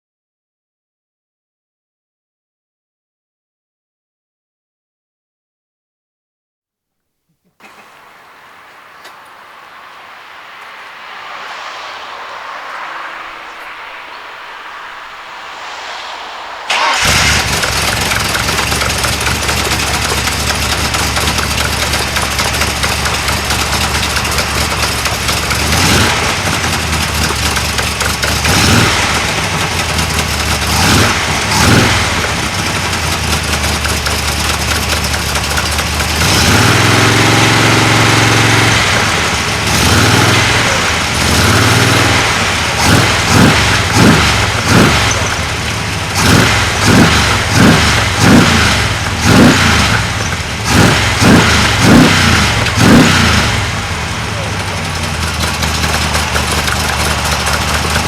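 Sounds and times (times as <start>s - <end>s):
engine idling and revving: 16.7s - 58.0s.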